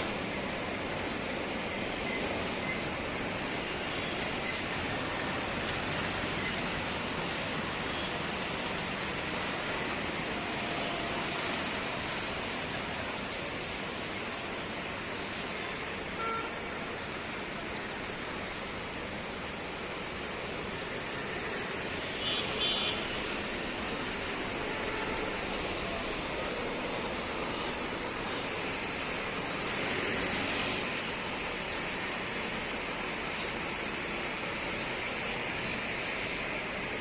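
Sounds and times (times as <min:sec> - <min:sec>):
steady rushing noise: 0:00.0 - 0:37.0.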